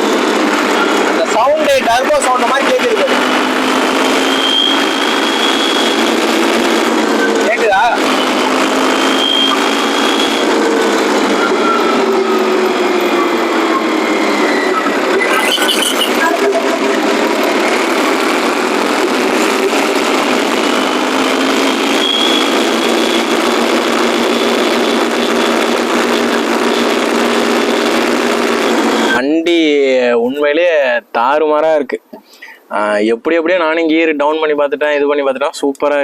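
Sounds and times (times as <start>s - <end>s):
tractor diesel engine running: 0.0s - 29.2s
turbo whistle: 4.2s - 6.1s, 8.0s - 10.6s, 11.2s - 12.1s, 21.9s - 23.6s.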